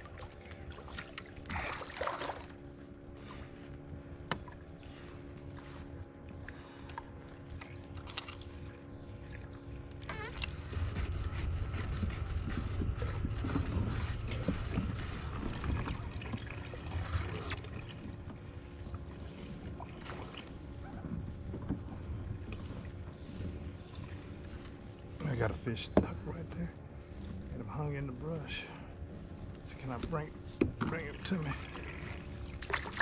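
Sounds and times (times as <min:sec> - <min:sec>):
water sloshing around kayak: 0:00.0 - 0:33.0
low rumble: 0:08.6 - 0:20.0.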